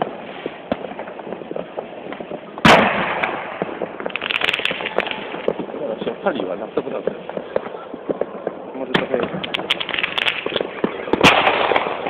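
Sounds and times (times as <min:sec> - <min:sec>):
firework pops and crackles: 0:00.0 - 0:12.0
loud firework bang: 0:02.1 - 0:12.0.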